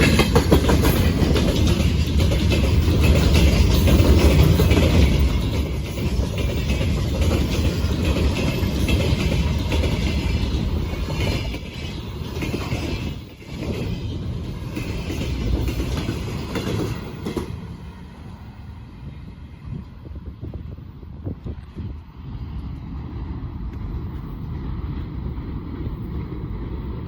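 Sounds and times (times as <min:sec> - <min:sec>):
train wheels clacking over rail joints: 0:00.0 - 0:17.8.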